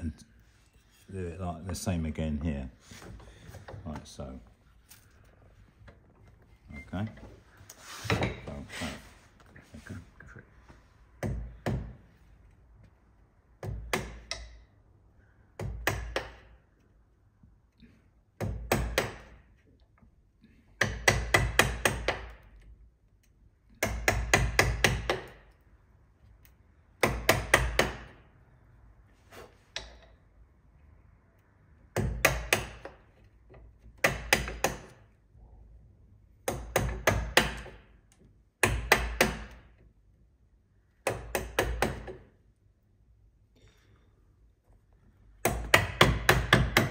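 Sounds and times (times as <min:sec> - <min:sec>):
mallet striking chisel: 0:31.9 - 0:33.0, 0:38.6 - 0:39.6, 0:45.4 - 0:46.9.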